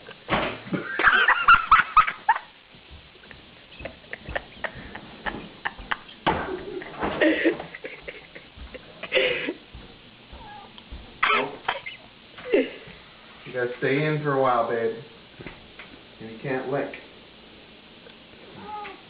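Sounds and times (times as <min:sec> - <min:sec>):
cat meowing: 0:10.3 - 0:10.8, 0:18.5 - 0:19.0.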